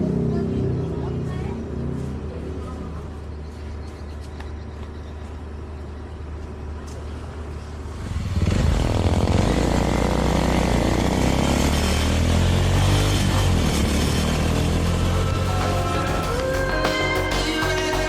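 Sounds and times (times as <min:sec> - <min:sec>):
motorcycle engine running: 0:07.6 - 0:18.0.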